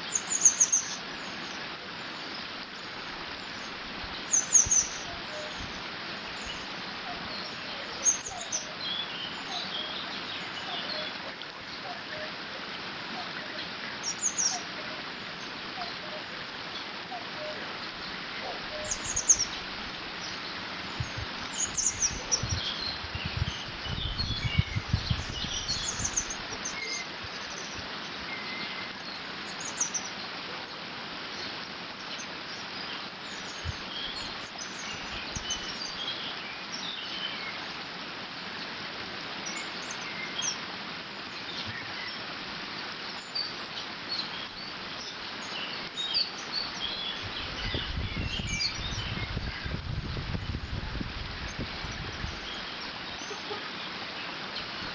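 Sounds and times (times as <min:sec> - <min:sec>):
small birds chirping: 0:00.0 - 0:12.5, 0:13.1 - 0:37.9, 0:38.6 - 0:54.9
wind rumble on microphone: 0:18.5 - 0:26.6, 0:47.1 - 0:53.0.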